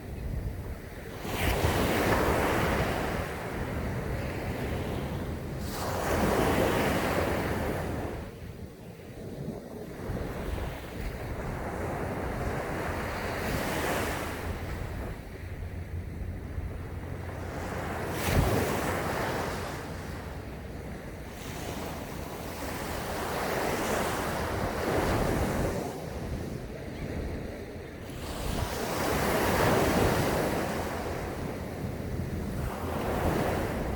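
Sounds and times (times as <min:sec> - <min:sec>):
waves breaking on sandy beach: 0:00.0 - 0:33.9
wind buffeting microphone: 0:00.0 - 0:33.9.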